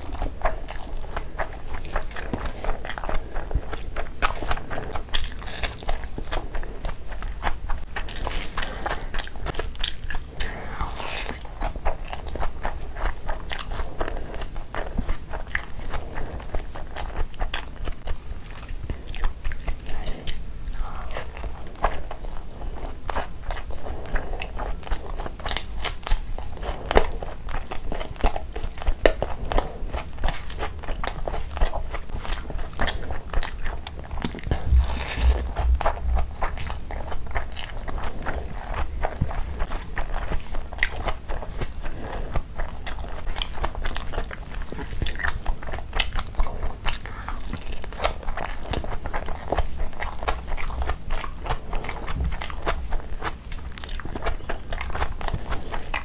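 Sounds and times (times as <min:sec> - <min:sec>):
person chewing and biting food: 0:00.0 - 0:56.0
wet mouth clicks and smacks: 0:34.2 - 0:36.8.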